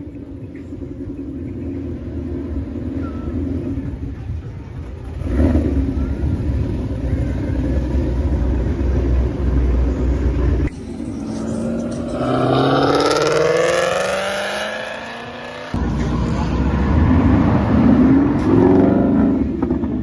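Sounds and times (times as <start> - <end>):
car engine rumbling low: 0.0 - 20.0
car engine accelerating hard: 5.0 - 20.0.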